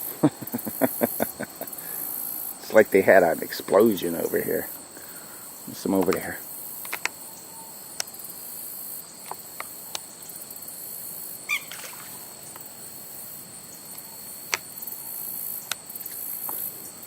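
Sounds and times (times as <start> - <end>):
crickets chirping: 0.0 - 17.0
faint clicks: 6.0 - 7.2
short squeaky call: 11.5 - 12.0.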